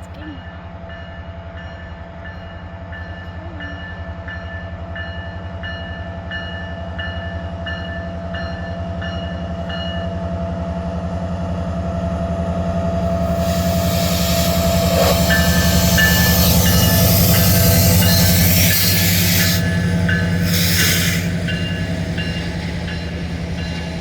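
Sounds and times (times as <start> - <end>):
diesel locomotive running: 0.0 - 24.0
locomotive bell ringing: 13.1 - 24.0.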